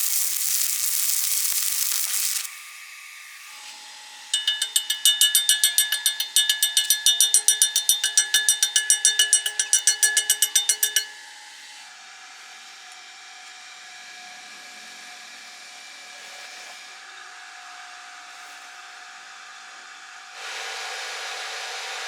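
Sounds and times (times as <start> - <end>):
welding arc hiss: 0.0 - 2.8.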